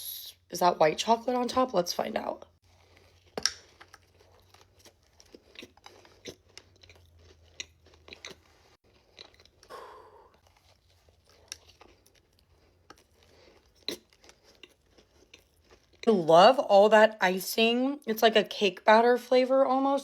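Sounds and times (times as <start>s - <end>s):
small crunches: 2.6s - 16.0s
chewing cookie: 2.6s - 16.1s.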